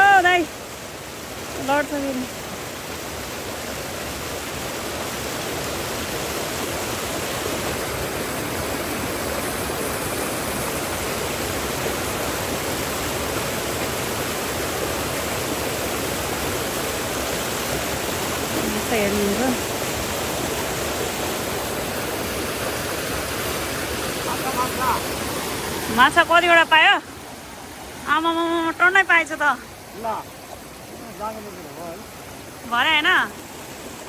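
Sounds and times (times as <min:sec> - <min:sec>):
stream rushing over rocks: 0:00.0 - 0:34.0.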